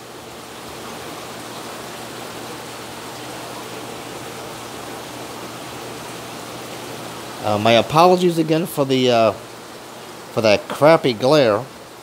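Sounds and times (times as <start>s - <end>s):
water rushing in aquarium: 0.0s - 12.0s.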